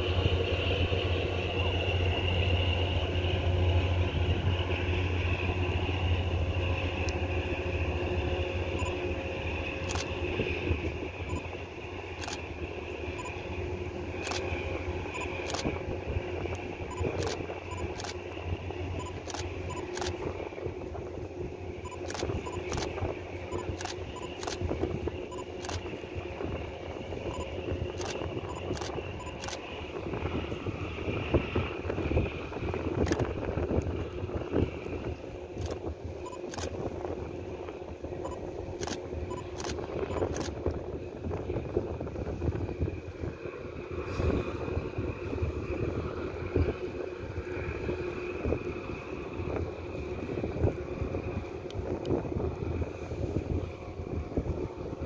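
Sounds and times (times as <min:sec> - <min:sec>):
camera shutter clicks: 0:19.1 - 0:20.2, 0:22.0 - 0:22.9.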